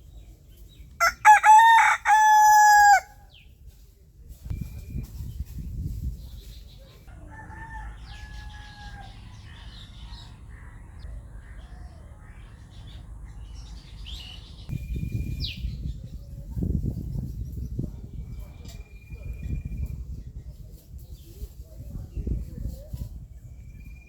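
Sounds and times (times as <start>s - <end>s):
rooster crowing: 1.0s - 3.2s, 7.2s - 9.2s
small birds chirping: 8.1s - 24.0s.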